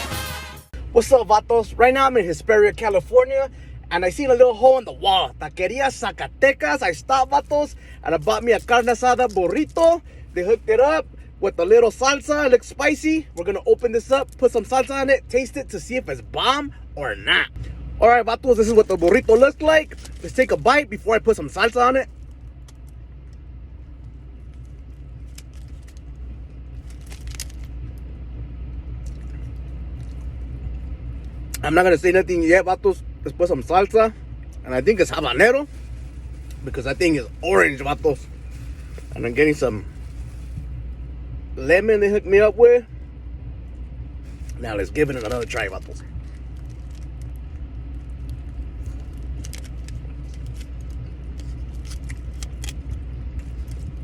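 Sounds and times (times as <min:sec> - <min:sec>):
idling car engine hum: 0:00.7 - 0:54.0
food wrapper crackling: 0:18.5 - 0:20.6, 0:21.3 - 0:28.1, 0:44.3 - 0:54.0.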